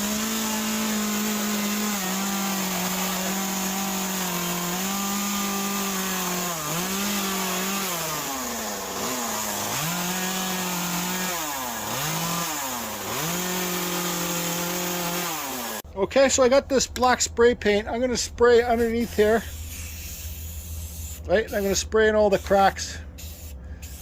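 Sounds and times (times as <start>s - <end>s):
chainsaw cutting wood: 0.0s - 15.8s.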